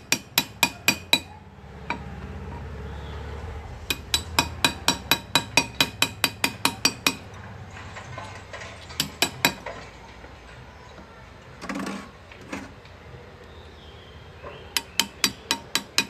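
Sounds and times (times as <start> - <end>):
hammer tapping graver into metal: 0.0 - 1.3, 3.9 - 7.3, 8.9 - 9.8, 14.8 - 16.0.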